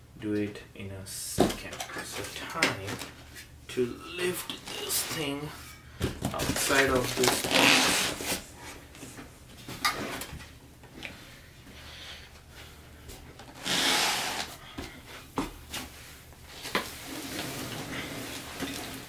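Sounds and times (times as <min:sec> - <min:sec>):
scraping rustle of cardboard: 0:06.5 - 0:08.5, 0:16.5 - 0:19.0.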